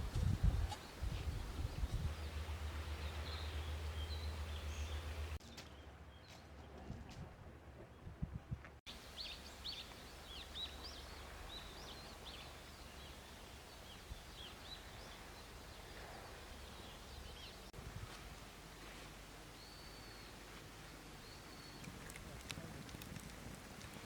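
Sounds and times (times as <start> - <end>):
small birds chirping: 0.5 - 5.4, 8.9 - 17.8, 19.4 - 24.0
low background rush: 1.4 - 5.4.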